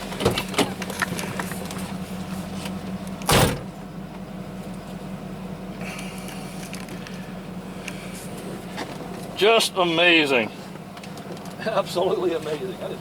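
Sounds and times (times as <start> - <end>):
van engine humming: 0.0 - 13.0
loud thud: 3.3 - 3.7.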